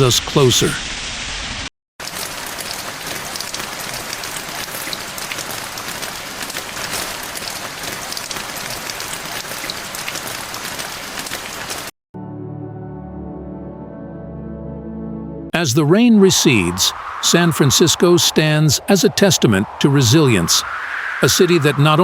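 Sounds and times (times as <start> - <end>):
steady rain falling: 0.0 - 11.9.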